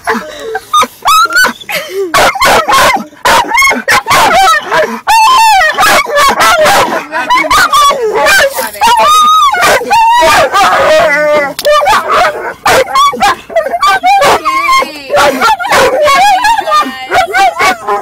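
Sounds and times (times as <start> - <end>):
dog barking and yelping: 0.0 - 18.0.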